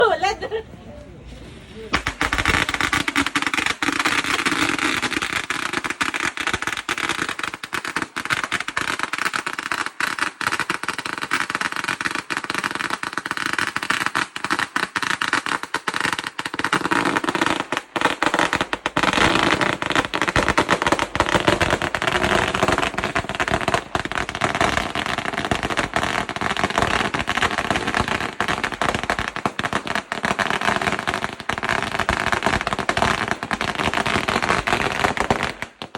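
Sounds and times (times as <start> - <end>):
firecrackers crackling: 0.0 - 35.9.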